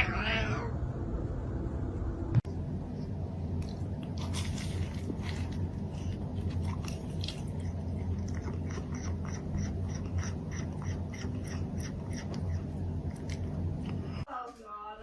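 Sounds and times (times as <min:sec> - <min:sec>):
animal crunching and chewing: 0:03.6 - 0:14.2.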